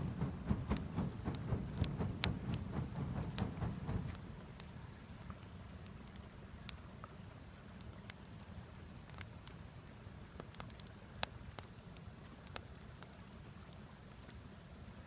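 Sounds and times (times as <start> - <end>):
low steady rumble: 0.0 - 5.8
wood fire crackling: 0.0 - 14.4.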